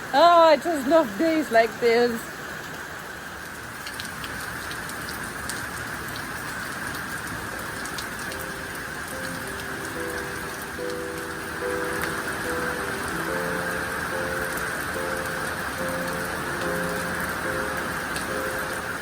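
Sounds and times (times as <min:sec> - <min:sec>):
heavy rain pouring: 0:00.0 - 0:19.0
soft background music: 0:07.3 - 0:19.0.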